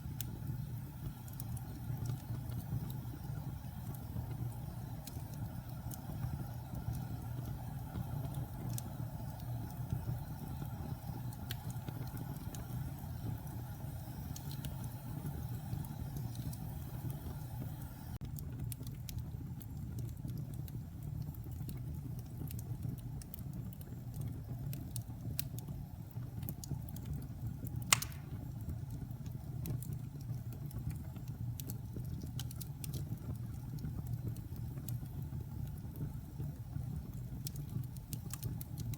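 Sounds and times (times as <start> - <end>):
fire crackling: 0.0 - 38.9
fire rumbling: 0.0 - 38.9
loud sharp pop: 27.9 - 28.4.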